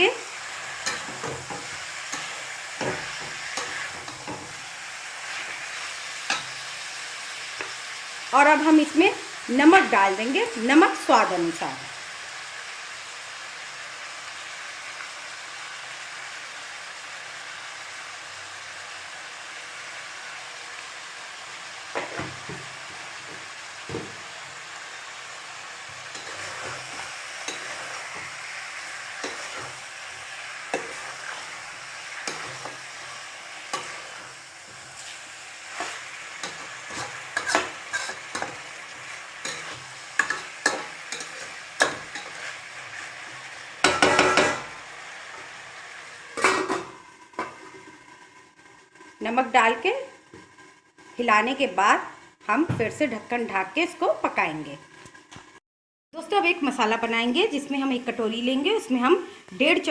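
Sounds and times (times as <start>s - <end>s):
chicken frying sizzle: 0.0s - 55.6s, 56.2s - 59.9s
utensil scraping and clinking pan: 0.8s - 4.6s, 26.0s - 28.4s, 29.2s - 29.8s, 30.6s - 31.6s, 32.2s - 33.0s, 33.7s - 43.1s, 46.4s - 47.9s.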